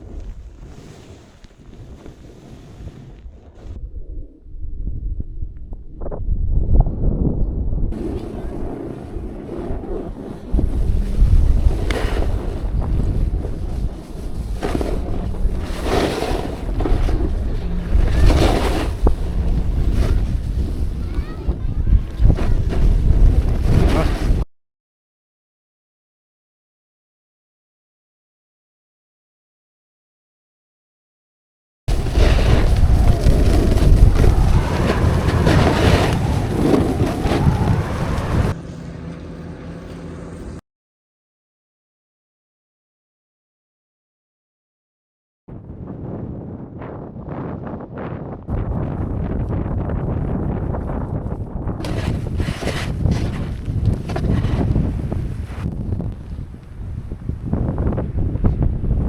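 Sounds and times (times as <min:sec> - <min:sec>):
snowboard scraping over snow: 0:00.0 - 0:03.8, 0:07.9 - 0:24.4, 0:31.9 - 0:40.6, 0:46.0 - 0:58.7
wind buffeting microphone: 0:00.0 - 0:24.4, 0:31.9 - 0:40.6, 0:45.5 - 0:59.0.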